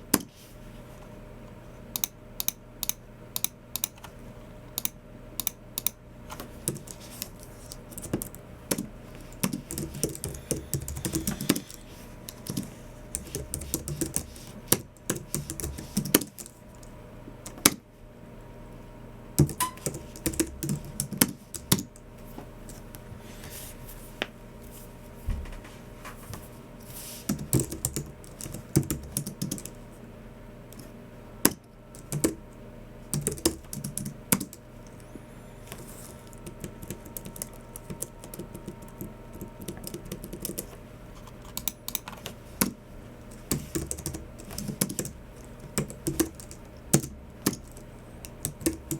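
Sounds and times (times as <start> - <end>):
keyboard typing: 6.6 - 16.9, 19.4 - 22.0, 27.3 - 29.8, 31.5 - 32.4, 33.1 - 35.0, 35.7 - 48.9.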